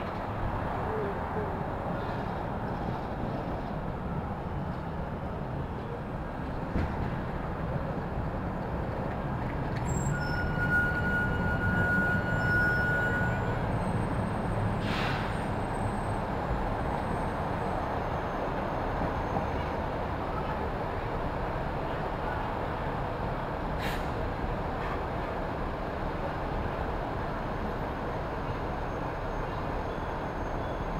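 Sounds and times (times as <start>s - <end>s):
city street traffic: 0.0s - 30.9s
short hiss: 14.8s - 15.3s.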